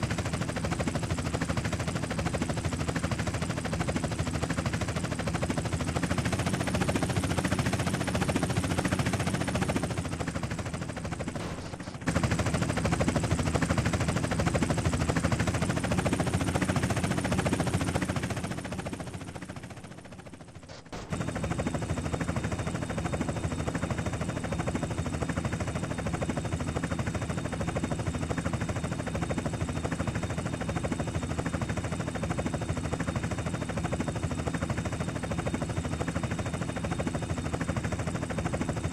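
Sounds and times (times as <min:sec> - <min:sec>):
helicopter engine: 0:00.0 - 0:38.9
helicopter rotor chopping: 0:00.0 - 0:38.9.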